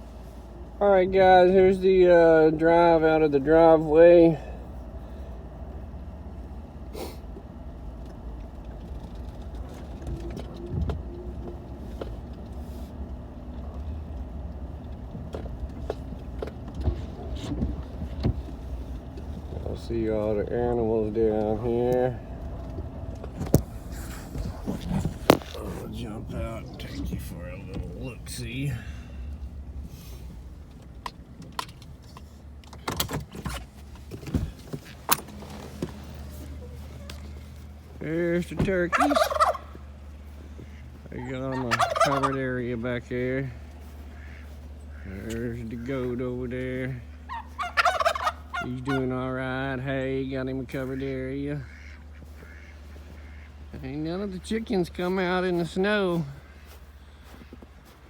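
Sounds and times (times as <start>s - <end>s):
engine and road rumble: 0.0s - 58.0s.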